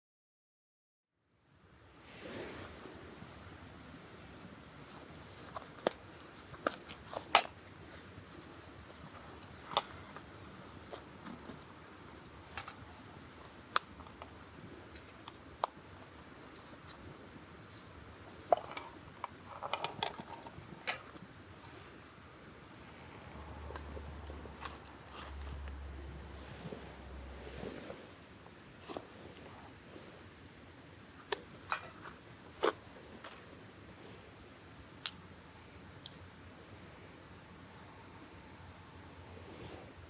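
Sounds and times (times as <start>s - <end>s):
sharp clicks and crunches: 4.2s - 22.0s, 30.7s - 33.7s.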